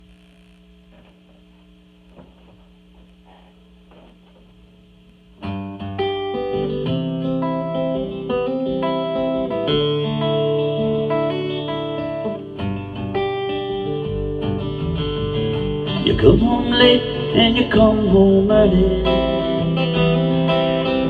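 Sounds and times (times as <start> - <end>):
faint hum: 0.0 - 21.0
picked guitar notes: 5.4 - 21.0.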